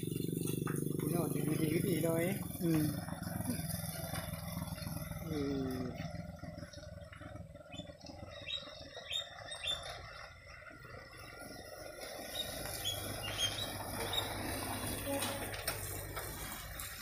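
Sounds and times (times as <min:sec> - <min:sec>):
outdoor background noise: 0:00.0 - 0:17.0
steady low hum: 0:00.0 - 0:17.0
bird chirping: 0:07.5 - 0:14.5.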